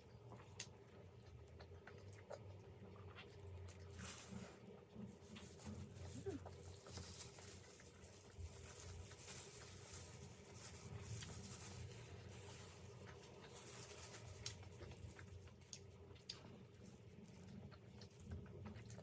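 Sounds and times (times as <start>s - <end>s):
person chewing food: 0.0s - 5.5s, 11.9s - 19.0s.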